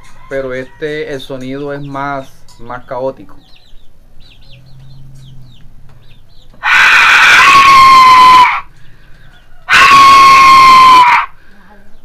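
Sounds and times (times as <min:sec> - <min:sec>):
clay whistle screaming: 0:06.6 - 0:08.7, 0:09.7 - 0:11.3.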